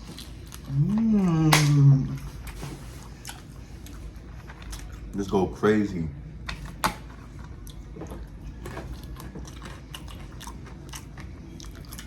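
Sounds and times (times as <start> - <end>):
steady low hum: 0.0 - 12.0
wet chewing mouth sounds: 7.4 - 12.0.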